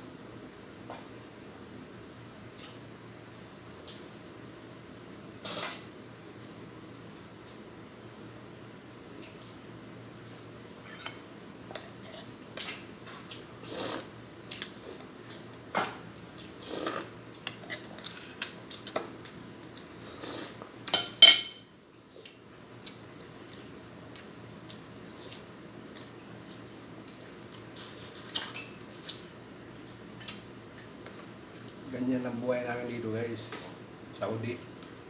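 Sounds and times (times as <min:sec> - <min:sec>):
utensils and dishes clattering: 0:21.0 - 0:21.6.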